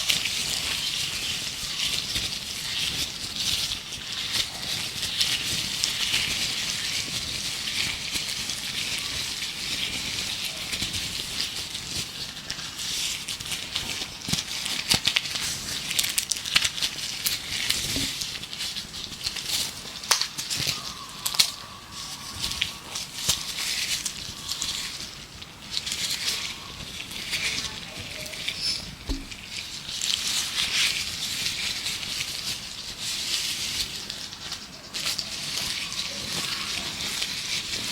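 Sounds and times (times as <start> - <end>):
gloves crinkling: 0.0 - 37.9
birdsong: 20.6 - 25.6, 26.2 - 29.5.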